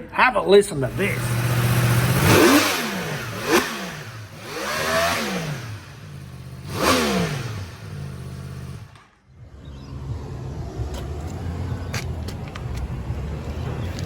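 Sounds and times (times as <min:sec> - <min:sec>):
motorcycle engine revving: 0:00.8 - 0:11.9.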